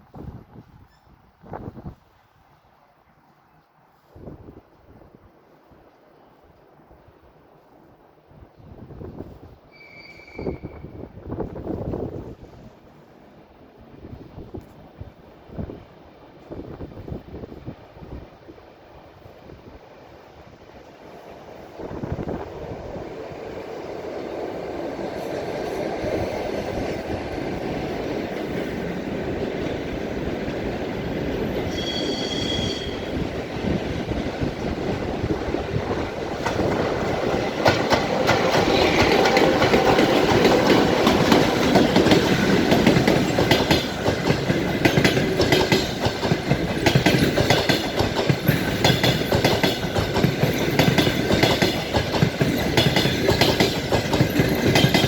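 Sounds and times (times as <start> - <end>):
passenger train passing: 0.0 - 55.0
wheels clattering over rail joints: 35.8 - 55.0.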